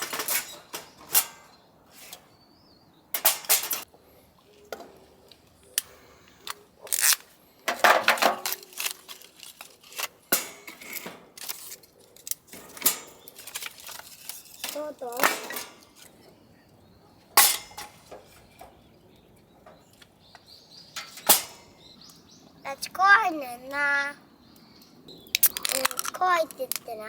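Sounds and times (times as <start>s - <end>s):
cookware and utensils clinking: 0.0s - 2.2s, 3.2s - 3.9s, 12.5s - 16.2s, 17.4s - 18.8s.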